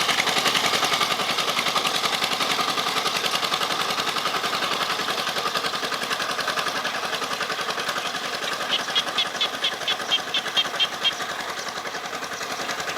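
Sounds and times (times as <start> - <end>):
small tractor engine chugging: 0.0 - 12.9
sharp ticks: 6.8 - 12.9.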